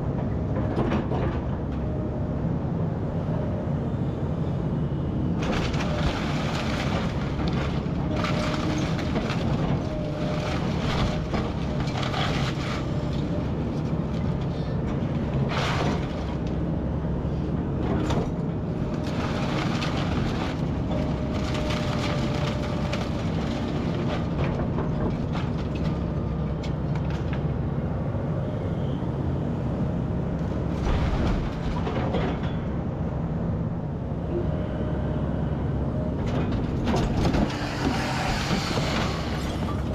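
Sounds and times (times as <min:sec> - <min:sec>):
debris crashing and crunching: 0:05.4 - 0:13.9, 0:18.8 - 0:26.0.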